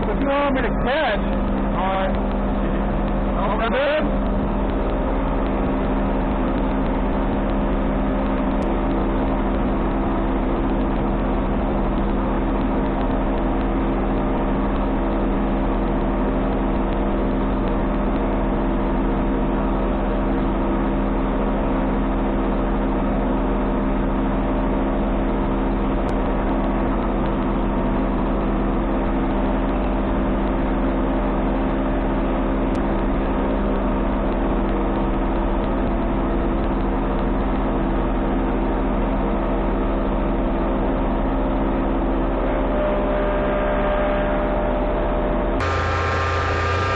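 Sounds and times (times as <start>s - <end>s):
thickness planer humming: 42.3s - 46.9s.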